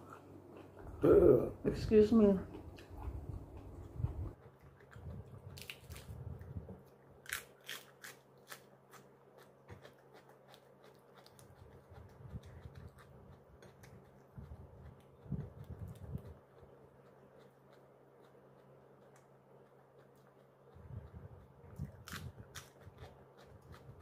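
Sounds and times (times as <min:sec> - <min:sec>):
soft chewing: 0:00.0 - 0:01.5, 0:02.2 - 0:24.0
crunching bites of lettuce: 0:04.9 - 0:06.5, 0:07.2 - 0:14.2, 0:21.8 - 0:24.0.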